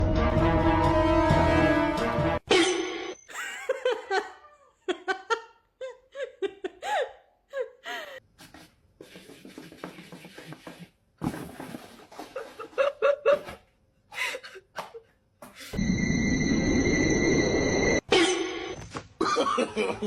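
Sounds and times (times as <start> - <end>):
person laughing: 3.3 - 8.2, 12.3 - 13.6, 19.2 - 20.0.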